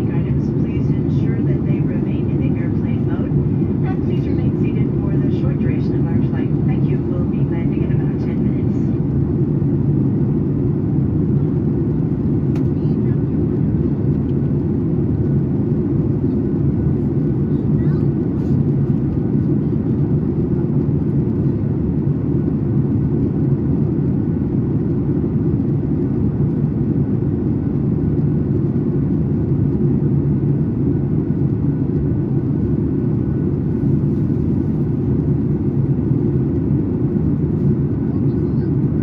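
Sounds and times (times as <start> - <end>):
jet engines droning: 0.0 - 39.0.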